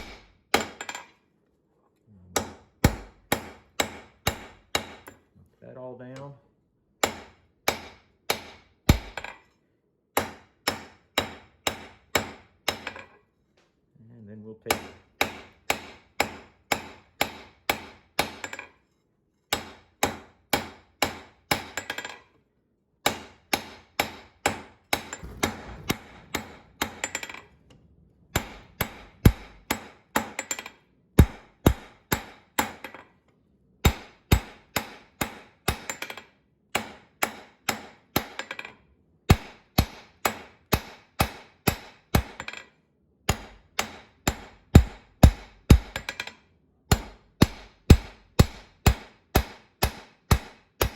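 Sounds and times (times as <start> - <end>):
hammer striking hot steel on anvil: 2.4 - 5.2, 23.1 - 27.6, 28.3 - 33.0, 33.8 - 36.2, 43.3 - 46.3, 46.9 - 50.9.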